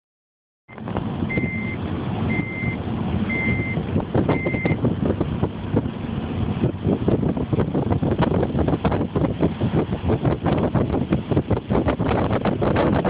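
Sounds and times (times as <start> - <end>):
low rumble with knocks: 0.8 - 2.2, 2.9 - 13.0
reversing alarm beeping: 1.3 - 4.8.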